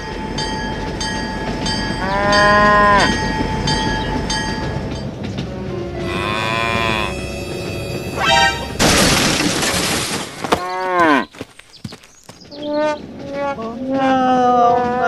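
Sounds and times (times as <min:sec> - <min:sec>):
tone gliding down: 0:00.6 - 0:08.8
pitched call rising and falling: 0:06.0 - 0:08.8
loud crashing burst: 0:08.1 - 0:10.4.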